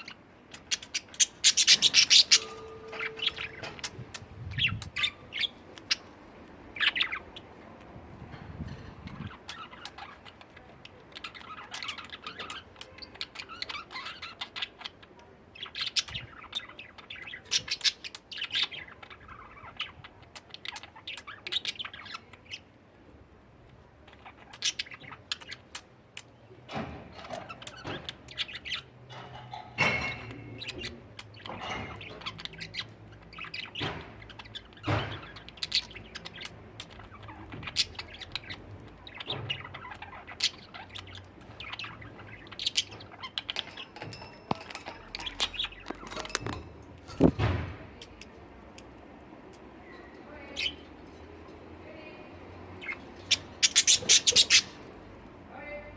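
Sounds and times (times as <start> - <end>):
budgerigars chattering: 0.0 - 6.1, 52.7 - 55.1.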